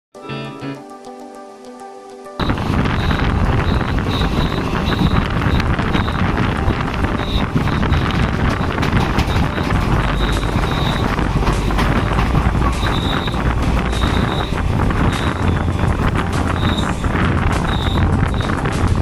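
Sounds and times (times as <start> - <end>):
train rumble: 2.4 - 19.0
wheels clicking on track: 2.4 - 19.0
wind buffeting microphone: 2.4 - 19.0.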